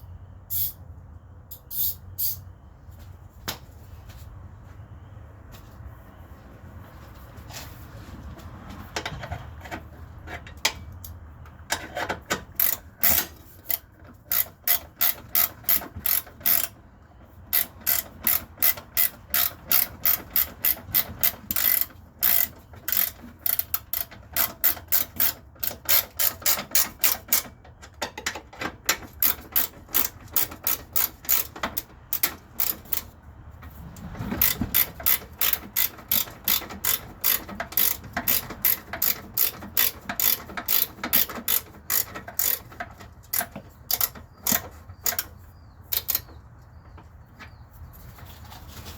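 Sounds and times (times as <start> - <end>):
ratchet wrench clicking: 0.5 - 0.8, 1.5 - 2.4, 12.4 - 16.8, 17.5 - 27.5, 29.0 - 33.1, 34.4 - 45.3, 45.9 - 46.3.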